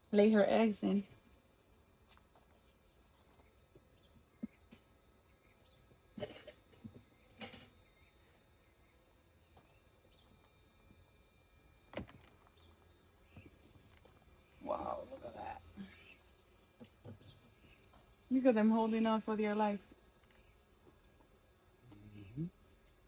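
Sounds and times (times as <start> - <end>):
faint bird chirps: 6.8 - 10.5, 12.4 - 16.5.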